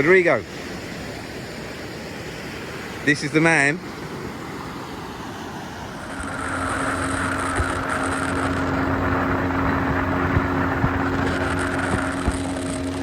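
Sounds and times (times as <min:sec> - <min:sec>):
boat engine running: 0:00.0 - 0:13.0
hiss of water or wind: 0:00.0 - 0:13.0
sharp knocks: 0:09.6 - 0:13.0.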